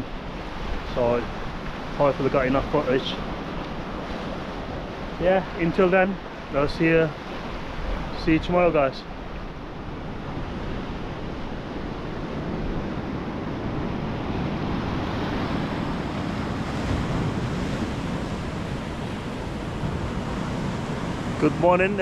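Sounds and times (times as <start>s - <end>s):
sea surf breaking: 0.3s - 22.0s
wind on microphone: 7.2s - 22.0s.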